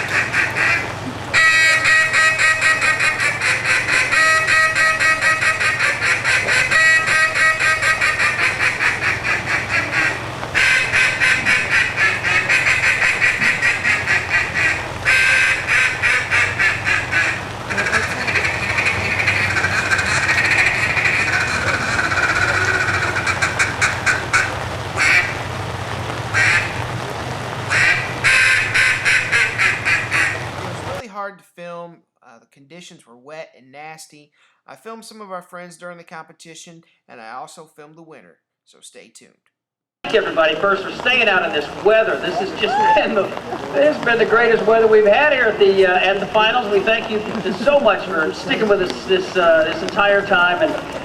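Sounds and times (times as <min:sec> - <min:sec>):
duck call quacks: 0:00.0 - 0:31.0, 0:40.1 - 0:51.0.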